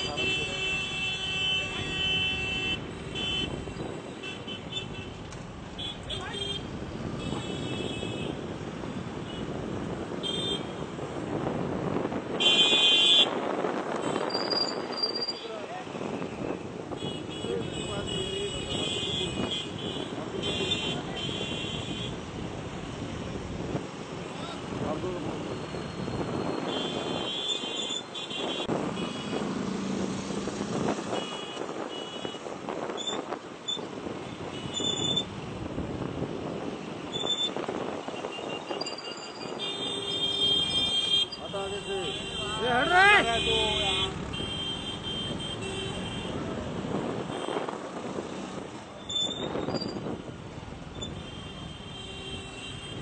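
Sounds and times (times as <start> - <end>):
vehicle horns honking: 0.0 - 5.2, 5.8 - 8.4, 10.2 - 10.8, 12.4 - 13.4, 16.1 - 22.2, 25.6 - 29.4, 31.0 - 32.5, 33.1 - 35.3, 37.1 - 47.7, 51.0 - 53.0
road traffic: 0.0 - 53.0
outdoor noise: 18.0 - 53.0.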